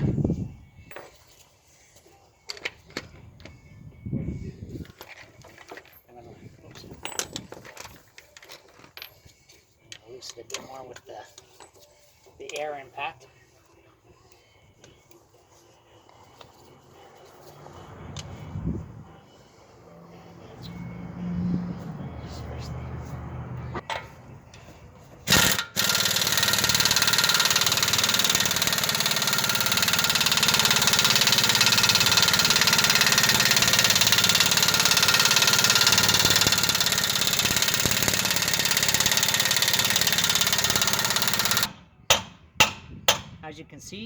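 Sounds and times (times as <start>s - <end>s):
air impact wrench hammering: 25.2s - 43.4s.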